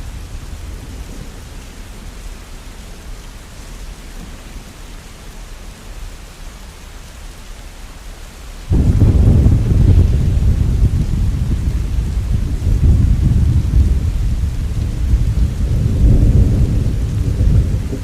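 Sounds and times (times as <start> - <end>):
steady rain: 0.0 - 18.0
thunder rumbling: 8.7 - 18.0.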